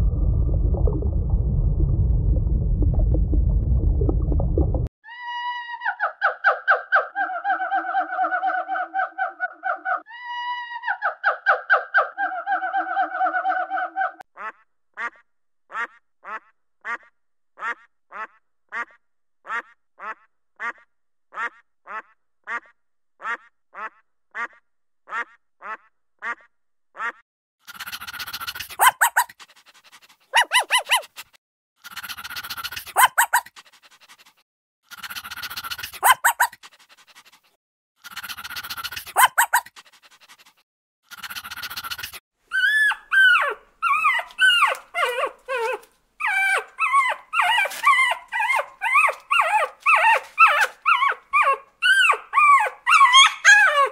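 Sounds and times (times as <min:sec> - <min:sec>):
duck quacking: 0:14.4 - 0:27.2
dog barking: 0:28.7 - 0:29.3, 0:30.3 - 0:31.1, 0:32.9 - 0:33.4, 0:35.9 - 0:36.5, 0:39.0 - 0:39.7.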